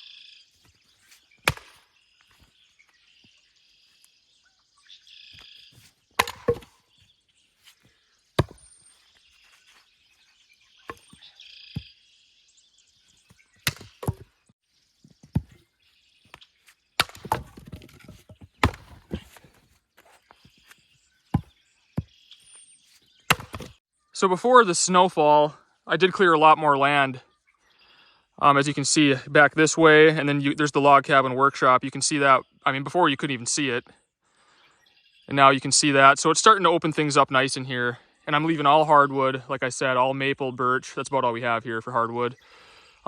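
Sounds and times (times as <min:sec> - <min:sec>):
songbird singing: 0:00.0 - 0:43.0
blows splitting wood: 0:06.2 - 0:06.8.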